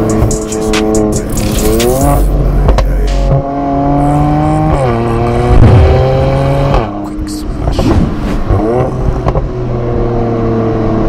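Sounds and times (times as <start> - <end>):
background music: 0.0 - 6.7
car engine revving: 0.0 - 11.0.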